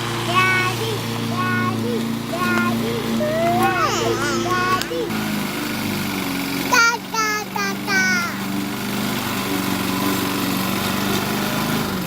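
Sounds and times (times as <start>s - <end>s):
lawn mower engine running: 0.0s - 12.0s
child calling out: 0.3s - 5.1s, 6.7s - 8.5s.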